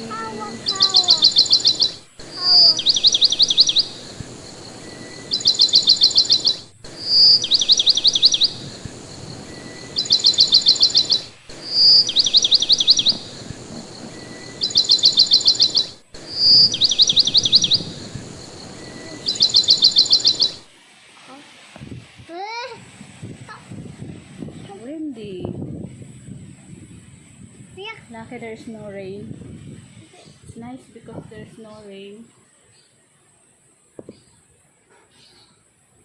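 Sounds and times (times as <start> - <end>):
bird trilling: 0.0 - 20.7
bird whistle: 0.0 - 20.7.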